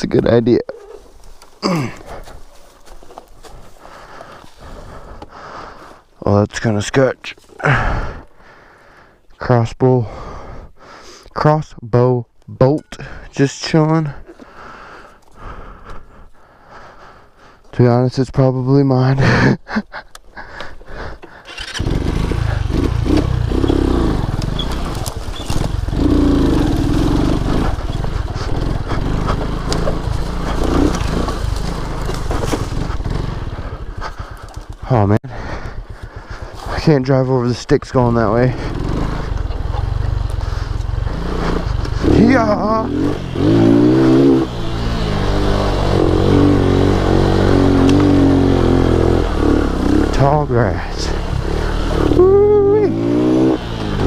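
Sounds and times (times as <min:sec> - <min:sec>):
motorcycle engine running: 0:21.4 - 0:54.0.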